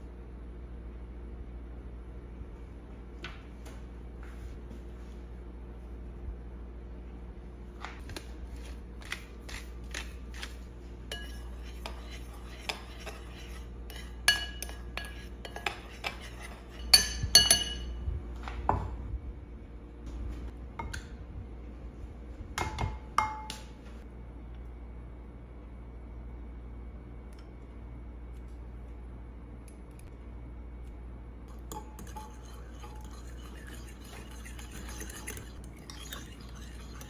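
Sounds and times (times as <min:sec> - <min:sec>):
steady low hum: 0:00.0 - 0:37.0
dishes and cutlery clinking: 0:11.1 - 0:18.0.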